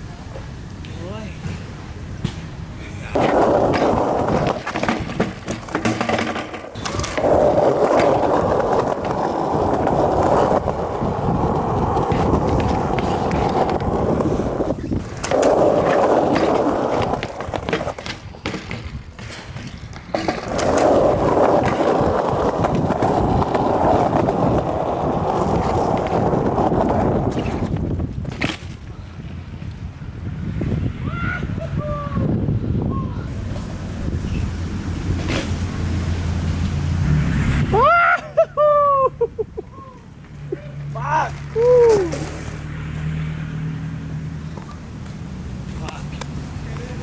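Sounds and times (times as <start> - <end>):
wheels rolling over rough pavement: 3.1 - 34.0.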